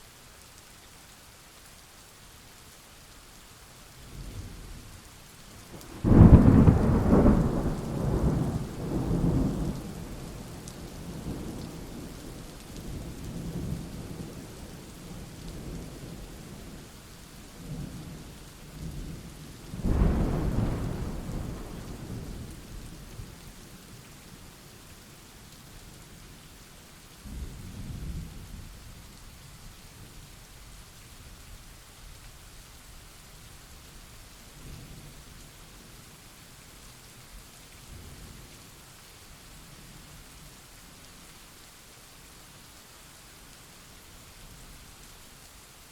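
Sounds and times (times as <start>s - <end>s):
steady rain: 0.0s - 45.9s
thunder rumbling: 5.8s - 10.5s, 19.8s - 22.8s.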